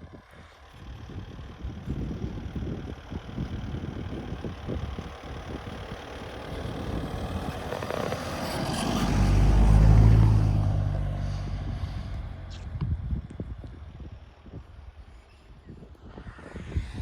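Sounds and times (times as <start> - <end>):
vehicle engine driving past: 5.8 - 12.7, 15.8 - 17.0.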